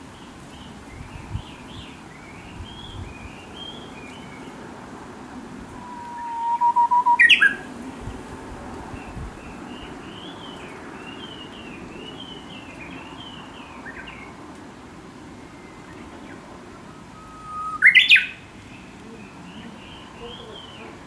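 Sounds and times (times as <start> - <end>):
warbler whistling song: 0.2 - 4.6, 5.8 - 7.7, 8.9 - 14.4, 15.3 - 20.9
bird warbling: 5.8 - 7.7, 16.7 - 18.4.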